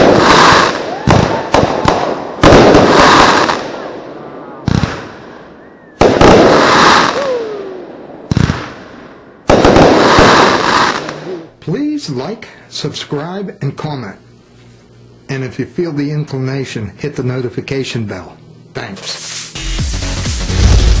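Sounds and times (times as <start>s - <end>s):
firework crackle: 0.0s - 3.9s, 6.0s - 11.5s, 19.0s - 19.6s
firework shots: 0.0s - 11.6s.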